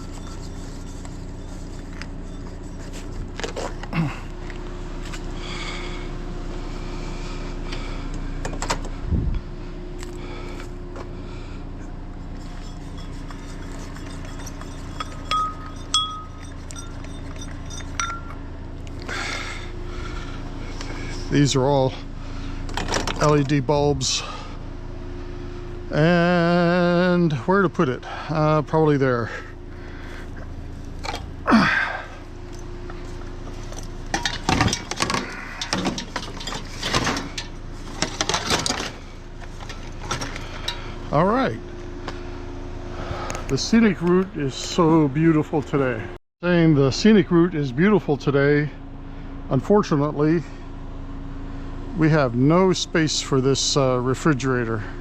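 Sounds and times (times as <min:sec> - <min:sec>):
scrap metal clattering and scraping: 0:00.0 - 0:05.4, 0:11.8 - 0:18.4, 0:32.4 - 0:41.0
low engine hum: 0:00.0 - 0:55.0
ringing metallic clinks: 0:12.6 - 0:18.4.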